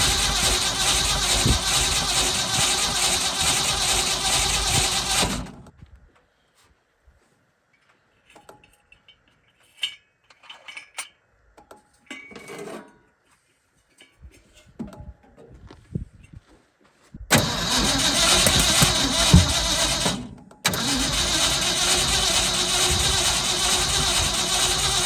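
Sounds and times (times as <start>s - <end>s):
starter cranking engine: 0.0s - 5.7s, 17.3s - 25.0s.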